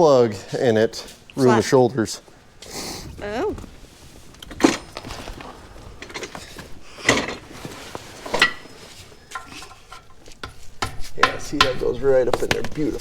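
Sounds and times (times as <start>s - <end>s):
metal tools clanking: 4.4s - 12.5s.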